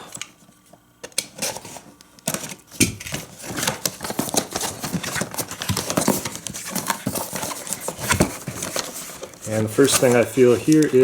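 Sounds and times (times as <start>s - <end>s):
cardboard box being opened: 3.1s - 10.8s.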